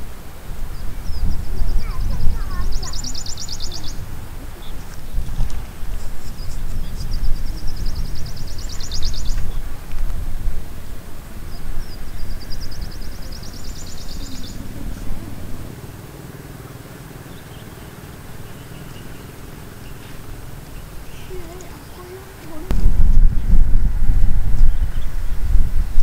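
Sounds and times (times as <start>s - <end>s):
low rumble: 0.0s - 26.0s
bird trilling: 0.7s - 9.8s, 11.3s - 16.5s, 17.1s - 23.3s.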